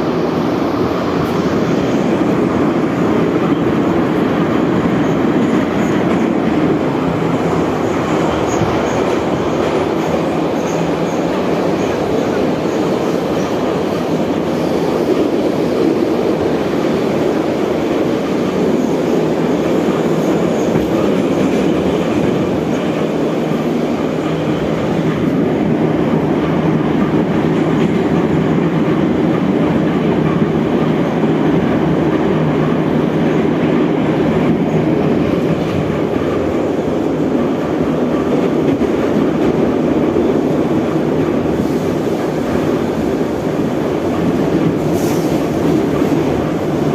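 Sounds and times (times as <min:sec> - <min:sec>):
subway train rumbling on rails: 0:00.0 - 0:46.9.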